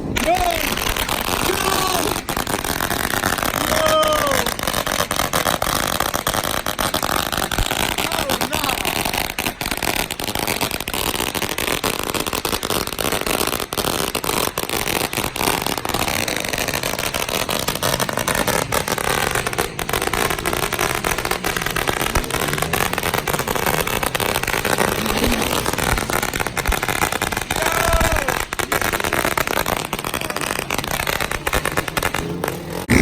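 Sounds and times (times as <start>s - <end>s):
dirt bike engine revving: 17.9s - 27.5s, 31.4s - 33.0s.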